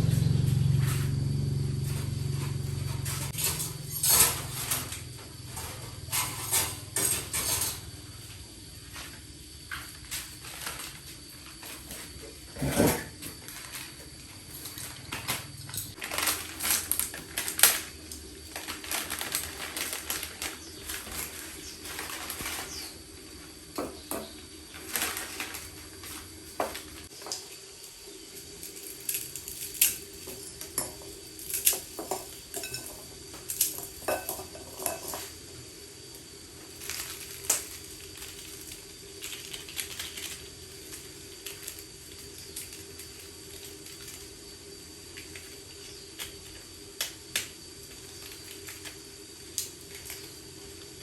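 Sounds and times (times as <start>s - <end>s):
steady low hum: 0.0s - 8.8s
metallic objects clinking: 30.8s - 35.3s.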